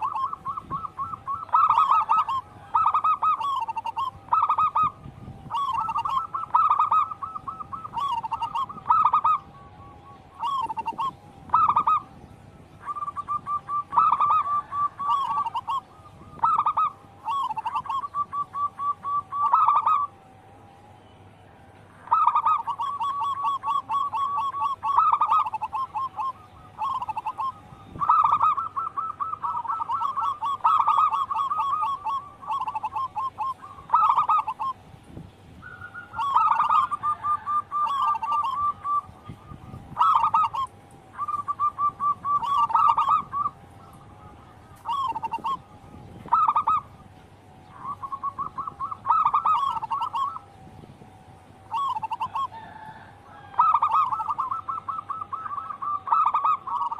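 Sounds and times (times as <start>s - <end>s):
doves trilled cooing: 0.0s - 56.9s.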